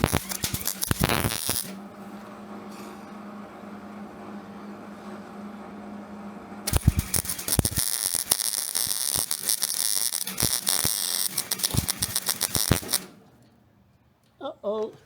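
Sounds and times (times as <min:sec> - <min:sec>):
welding arc crackling: 0:00.0 - 0:01.8, 0:06.7 - 0:13.2.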